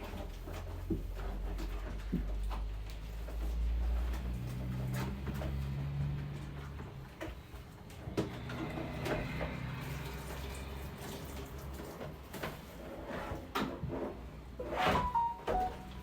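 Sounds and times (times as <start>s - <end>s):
knocks and clatter: 0.0s - 9.8s
scrubbing: 9.0s - 13.5s
water running and splashing: 9.4s - 12.8s.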